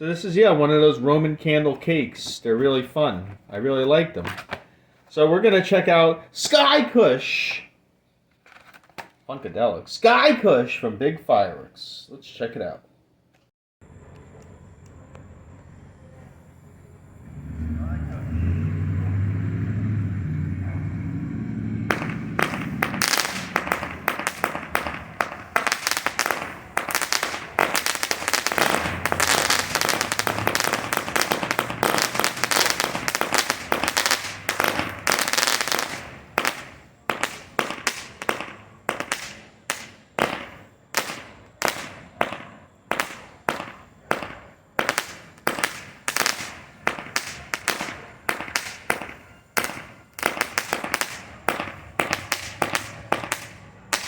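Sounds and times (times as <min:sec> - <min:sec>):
firework crackling: 0:18.2 - 0:54.0
firework shots: 0:19.8 - 0:54.0.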